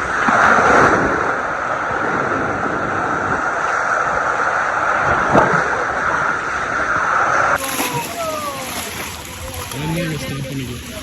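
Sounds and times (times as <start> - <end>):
waterfall rushing: 7.6 - 11.0.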